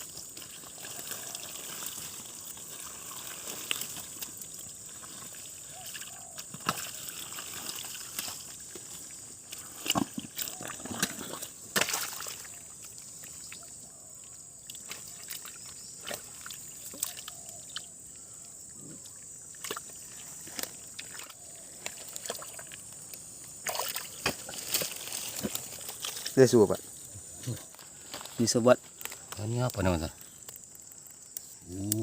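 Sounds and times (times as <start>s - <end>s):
stream water sloshing and trickling: 0.0s - 17.9s, 19.1s - 26.4s
splashes and knocks: 5.9s - 8.8s, 9.8s - 12.7s, 14.8s - 17.3s, 19.5s - 22.7s, 23.6s - 26.2s.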